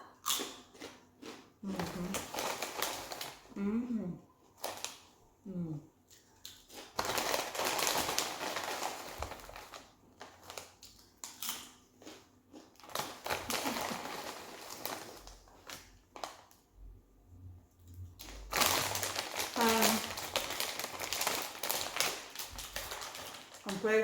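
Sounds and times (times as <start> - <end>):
chips crackling and crunching: 0.2 - 3.5, 6.4 - 16.6, 18.2 - 24.0.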